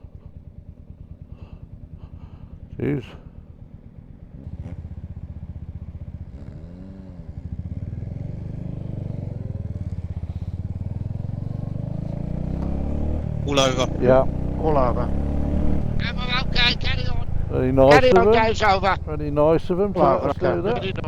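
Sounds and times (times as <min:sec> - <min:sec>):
motorcycle engine pulling away: 0:00.0 - 0:21.0.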